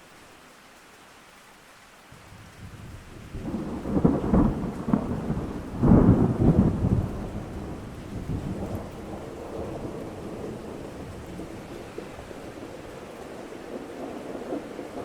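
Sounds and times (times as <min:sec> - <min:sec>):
steady rain: 0:00.0 - 0:15.0
thunder rolling: 0:03.3 - 0:15.0.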